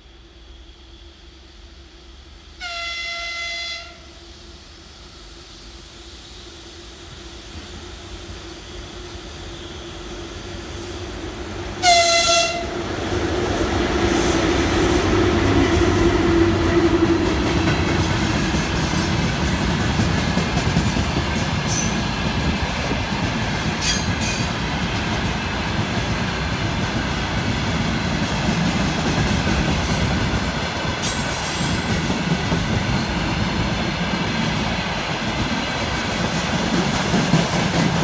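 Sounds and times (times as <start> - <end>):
locomotive horn blasts: 2.6 - 4.2, 11.8 - 12.7
train wheels clickety-clack: 7.0 - 38.0.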